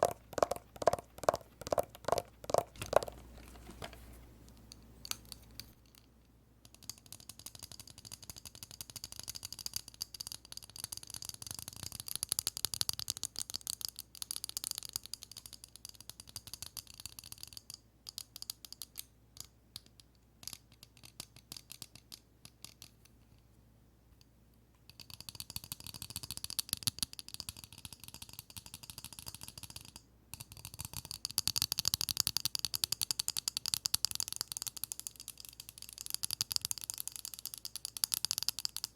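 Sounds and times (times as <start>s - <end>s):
tapping on eyeglasses: 0.0s - 5.8s.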